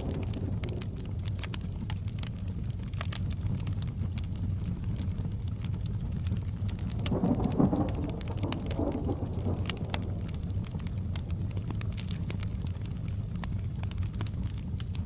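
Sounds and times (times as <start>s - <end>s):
distant thunder rolling: 0.0s - 2.9s, 6.6s - 12.9s
fireplace crackling: 0.0s - 15.0s
rain hiss: 0.0s - 15.0s.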